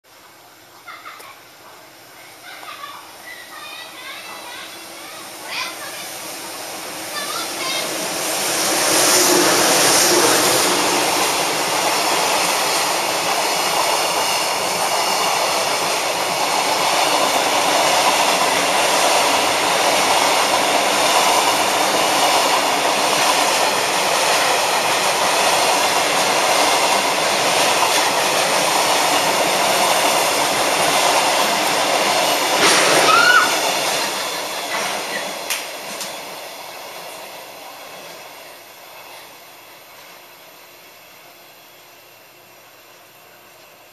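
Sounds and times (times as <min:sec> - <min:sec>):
train wheels rumbling on rail: 0:02.0 - 0:40.9
wheel squeal: 0:32.8 - 0:33.7.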